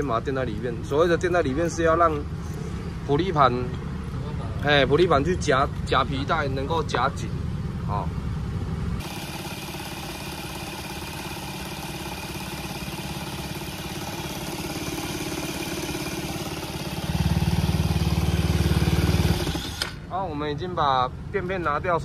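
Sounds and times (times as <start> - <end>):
scooter engine running: 6.1 - 20.2.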